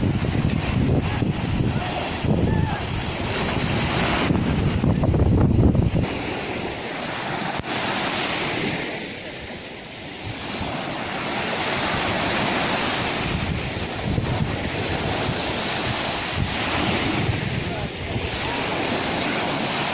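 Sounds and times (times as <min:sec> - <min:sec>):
wind rumbling on microphone: 0:00.0 - 0:09.4, 0:10.0 - 0:19.9
sea waves breaking: 0:00.0 - 0:19.9.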